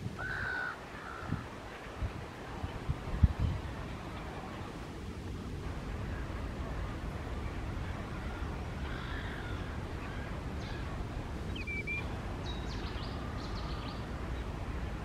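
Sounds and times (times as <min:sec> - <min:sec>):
faint high bird calls: 0:00.2 - 0:01.4, 0:07.4 - 0:14.6.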